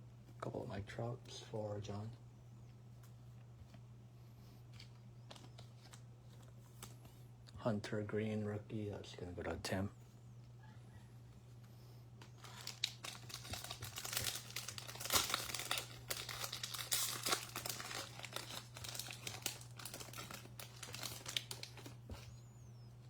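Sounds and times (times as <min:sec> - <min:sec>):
foil wrapper tearing and crinkling: 0:12.2 - 0:22.3.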